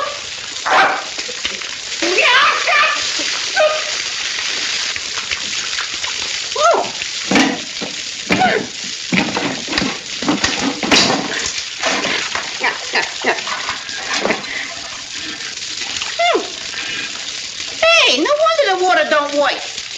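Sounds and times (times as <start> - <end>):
water gushing from pipe: 0.0 - 19.9
sharp knocks: 7.3 - 11.4.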